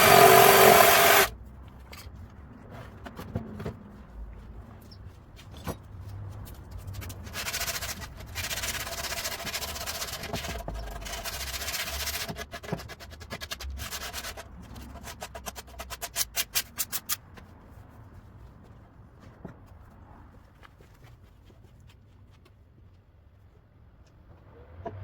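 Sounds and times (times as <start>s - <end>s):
power tool hissing: 0.0s - 1.3s
rhythmic rubbing on wood: 0.0s - 1.3s.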